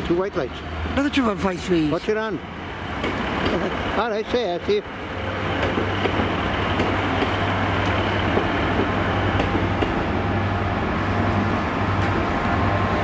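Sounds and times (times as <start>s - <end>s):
train rumbling past slowly: 0.0s - 13.0s
train wheels clicking: 3.0s - 3.8s, 5.4s - 10.1s.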